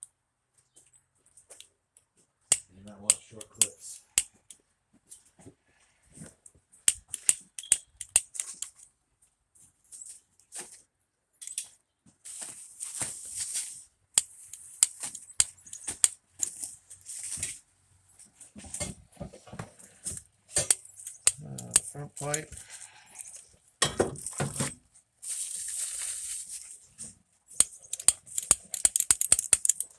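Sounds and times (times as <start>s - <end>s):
tools clicking and clinking: 2.5s - 4.6s, 6.8s - 8.9s, 11.4s - 11.8s, 14.2s - 17.5s, 19.7s - 25.0s, 27.0s - 29.9s.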